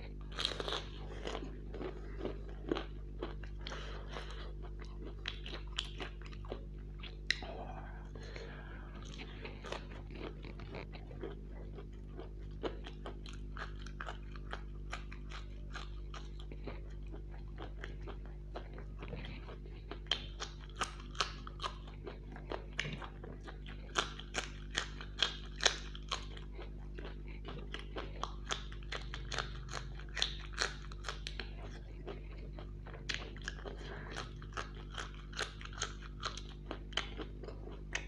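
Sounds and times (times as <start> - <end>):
mouth chewing fried food: 0.0 - 38.0.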